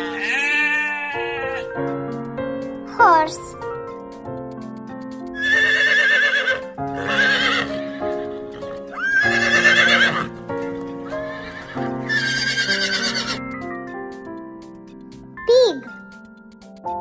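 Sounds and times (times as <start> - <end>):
horse whinnying: 0.0 - 1.8, 5.4 - 10.3, 11.2 - 13.4
light background music: 0.0 - 17.0.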